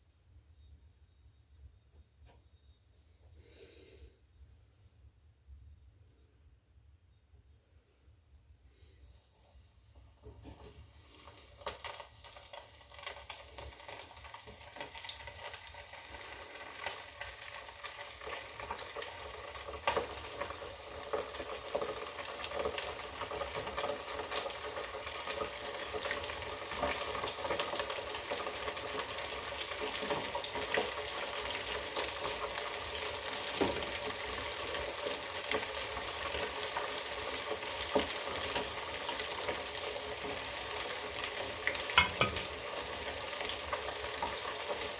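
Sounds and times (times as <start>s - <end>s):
fish sizzling in a pan: 9.1s - 44.9s.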